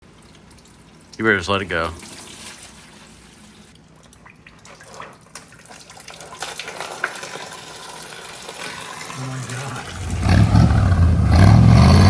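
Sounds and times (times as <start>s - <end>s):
water trickling and dripping: 0.0s - 11.5s.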